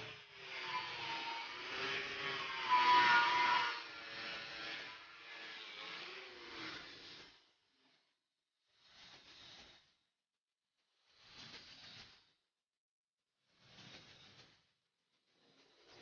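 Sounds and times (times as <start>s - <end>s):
angle grinder whining on steel: 0.0s - 7.9s.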